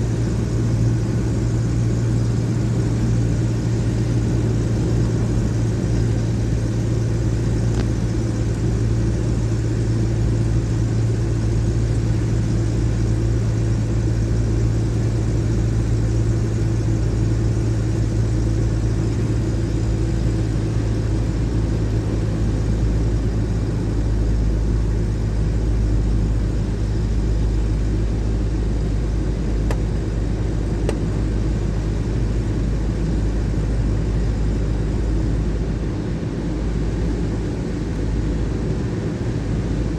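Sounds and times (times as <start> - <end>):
engine rumble: 0.0 - 39.9
road noise: 0.0 - 39.9.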